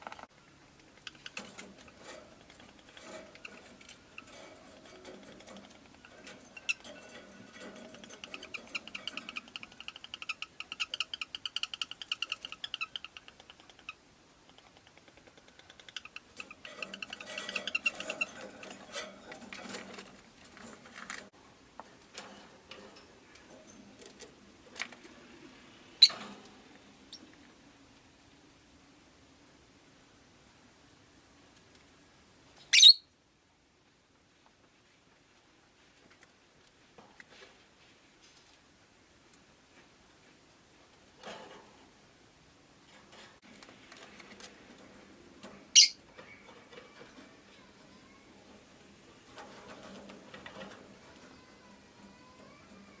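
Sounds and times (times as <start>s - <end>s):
lovebird clicking and chattering: 7.7s - 18.6s.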